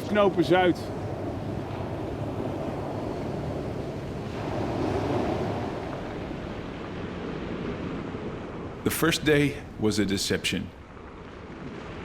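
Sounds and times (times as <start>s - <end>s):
sea water lapping: 0.1s - 8.7s
wind noise on microphone: 0.6s - 8.8s.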